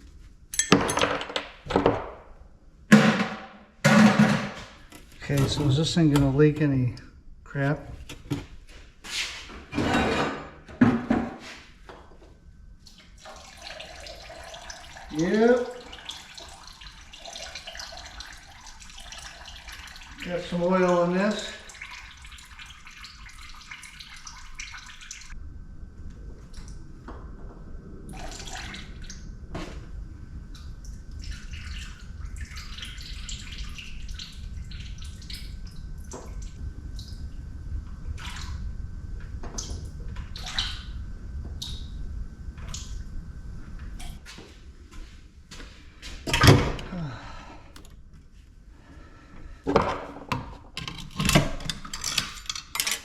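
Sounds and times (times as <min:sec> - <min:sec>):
steady low hum: 0:01.9 - 0:52.9
loud knock: 0:02.9 - 0:04.8
parts clicking and rattling: 0:49.8 - 0:53.0.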